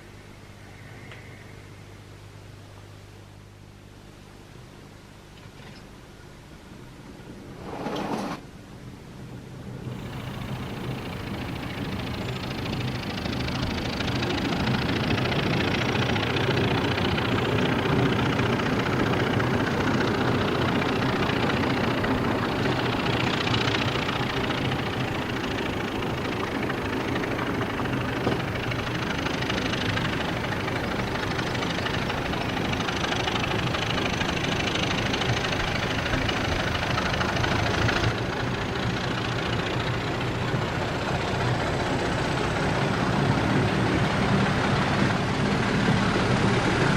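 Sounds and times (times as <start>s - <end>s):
faint high whine: 0.0s - 34.5s
diesel locomotive engine idling: 9.8s - 46.9s.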